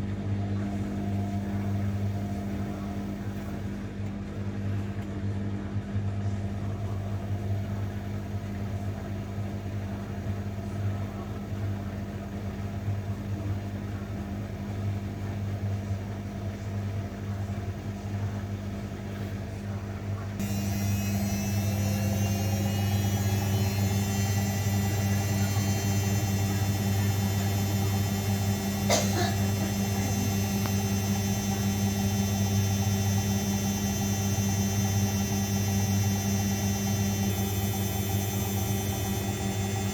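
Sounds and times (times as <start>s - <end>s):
washing machine motor hum: 0.0s - 39.9s
faint rising whine: 20.4s - 39.9s.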